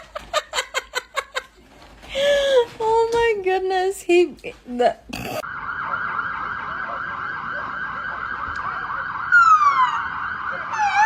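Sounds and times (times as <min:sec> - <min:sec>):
siren yelping and wailing: 0:05.4 - 0:11.0.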